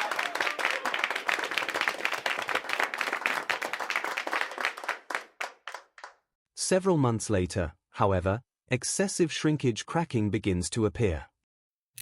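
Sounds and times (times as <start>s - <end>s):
people applauding: 0.0s - 6.2s.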